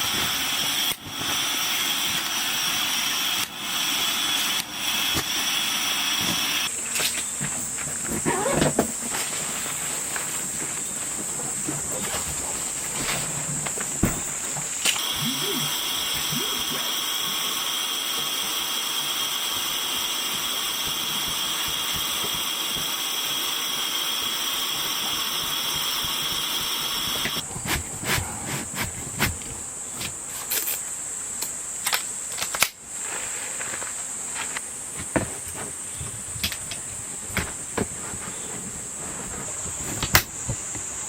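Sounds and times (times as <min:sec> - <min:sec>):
small motor whining: 0:15.0 - 0:27.4.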